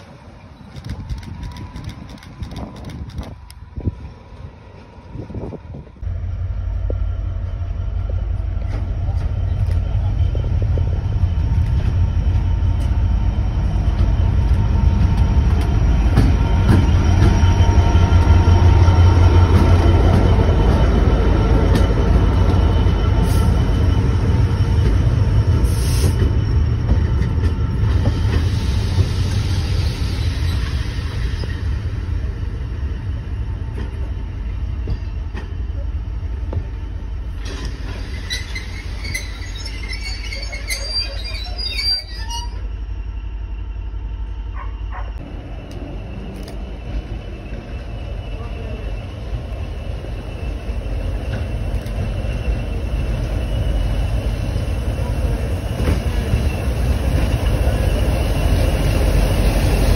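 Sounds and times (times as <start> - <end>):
train rumbling on rails: 0.0 - 59.9
wheels squealing: 37.4 - 43.2.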